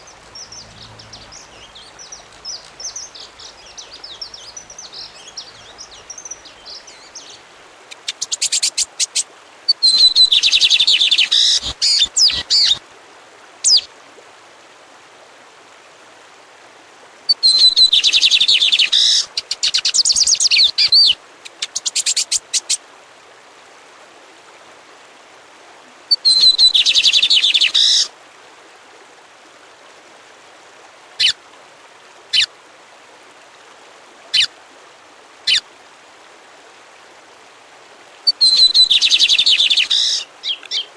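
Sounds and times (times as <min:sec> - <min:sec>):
songbird singing: 0:00.0 - 0:09.1, 0:09.7 - 0:12.8, 0:13.6 - 0:13.9, 0:17.3 - 0:22.7, 0:26.1 - 0:28.1, 0:38.2 - 0:40.9.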